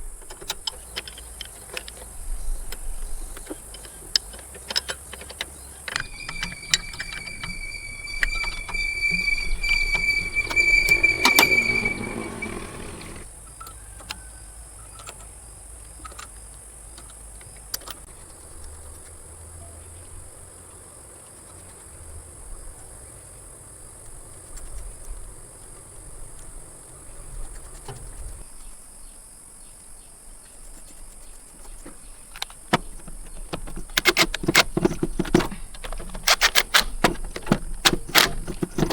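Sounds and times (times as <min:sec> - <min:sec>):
small motor whining: 0:06.0 - 0:13.3.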